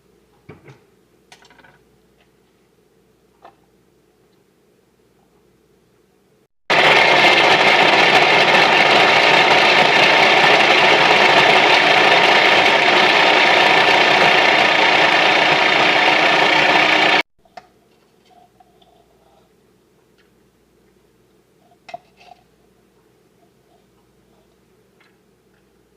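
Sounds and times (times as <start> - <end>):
food processor motor running: 6.7 - 17.2.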